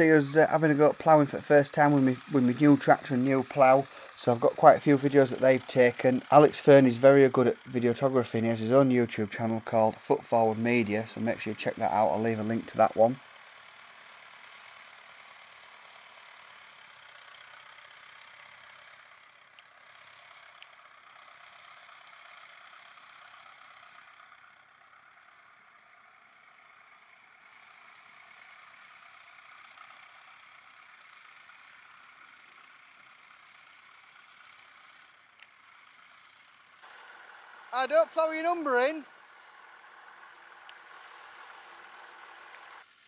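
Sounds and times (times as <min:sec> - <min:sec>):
faint tractor engine: 0:00.0 - 0:43.0
small clicks: 0:20.4 - 0:20.8, 0:34.6 - 0:35.6, 0:41.9 - 0:42.8.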